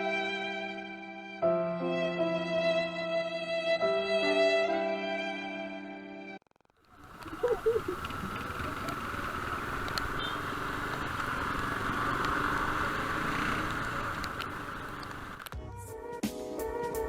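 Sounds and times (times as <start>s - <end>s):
motorcycle running: 6.6s - 15.6s
wind on microphone: 7.0s - 15.4s.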